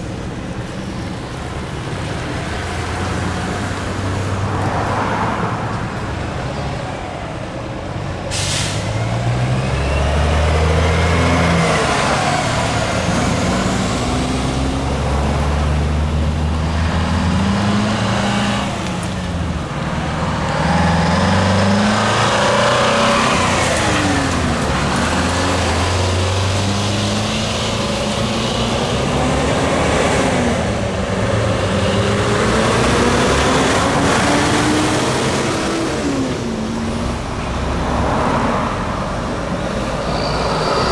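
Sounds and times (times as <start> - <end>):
diesel trucks revving through gears: 0.0 - 40.9
air-brake hiss: 8.3 - 9.0.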